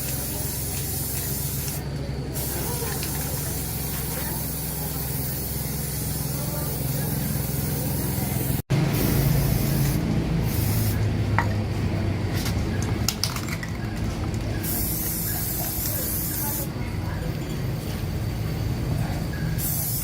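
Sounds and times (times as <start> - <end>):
hiss of spraying air: 0.0 - 11.0, 14.6 - 16.7, 19.6 - 20.0
low machine hum: 0.0 - 19.6.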